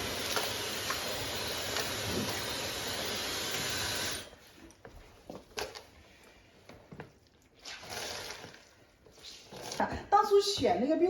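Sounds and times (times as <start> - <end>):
hair dryer blowing air: 0.0 - 4.3.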